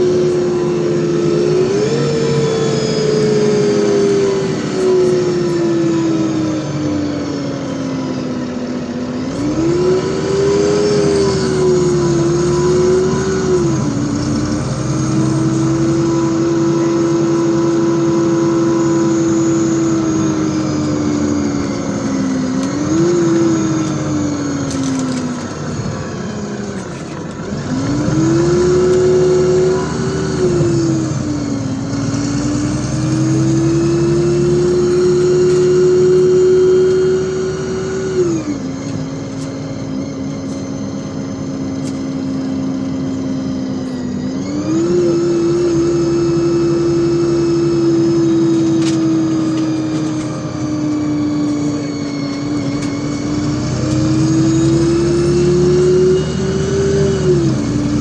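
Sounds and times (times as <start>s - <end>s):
bus engine and drivetrain whine: 0.0s - 58.0s.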